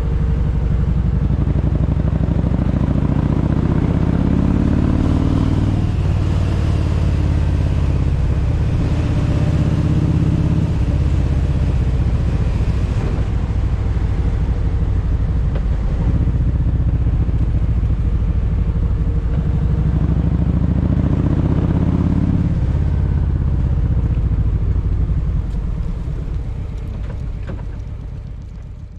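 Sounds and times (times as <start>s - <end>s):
motorcycle engine droning: 0.0s - 28.9s.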